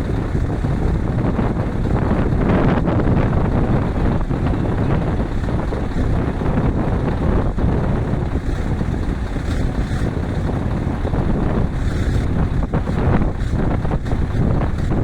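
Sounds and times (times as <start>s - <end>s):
truck engine rumbling: 0.0s - 15.0s
wind buffeting microphone: 0.0s - 15.0s.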